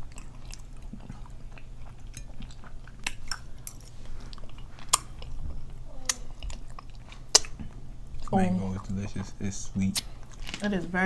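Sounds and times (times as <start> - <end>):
person chewing: 0.0 - 10.6
wet mouth clicks and smacks: 6.1 - 7.6.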